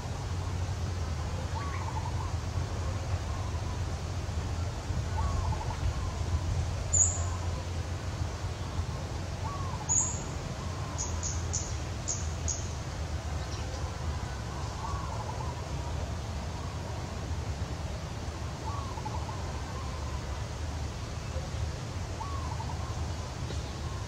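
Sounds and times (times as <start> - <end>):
birds chirping: 9.4 - 13.9.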